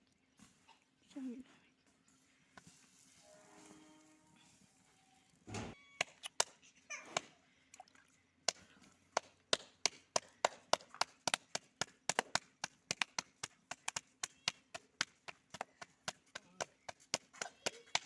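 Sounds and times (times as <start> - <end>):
thump: 5.5 - 5.8.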